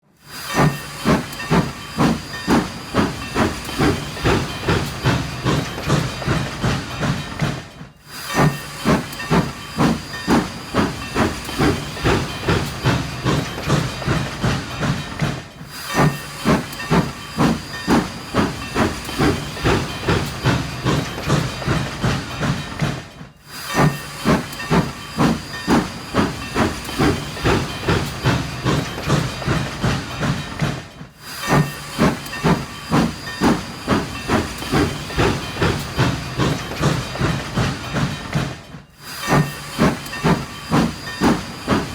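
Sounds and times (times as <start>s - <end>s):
steam train chugging with hiss: 0.0s - 41.9s.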